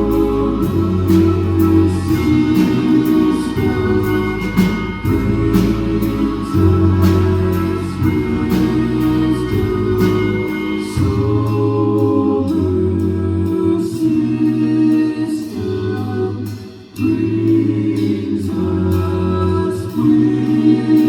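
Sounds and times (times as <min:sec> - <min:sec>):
live pop-rock band playing: 0:00.0 - 0:15.4.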